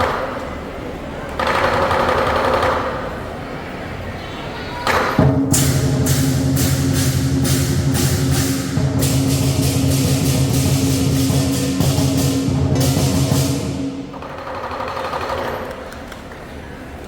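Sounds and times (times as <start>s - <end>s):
cymbal clashes: 5.2s - 14.2s
gong: 5.2s - 14.2s
low ringing drum: 5.2s - 14.3s.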